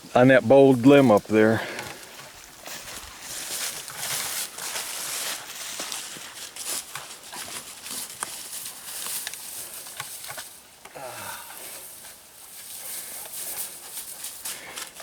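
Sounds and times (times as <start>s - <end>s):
footsteps rustling dry leaves: 0.7s - 10.8s, 11.4s - 15.0s.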